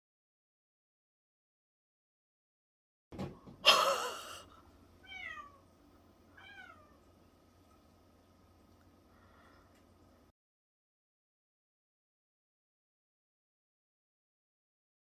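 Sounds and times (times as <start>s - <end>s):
cat meowing: 5.0s - 5.6s, 6.3s - 7.1s.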